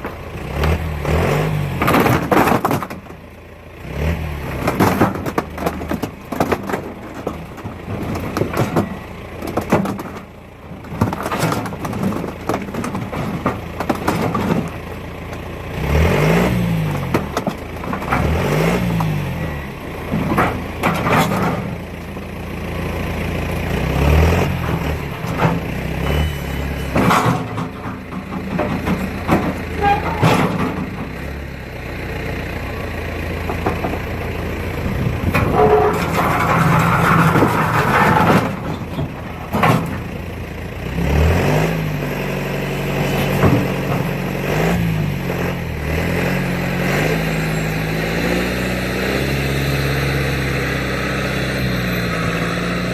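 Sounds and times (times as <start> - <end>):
engine running: 0.0 - 52.9.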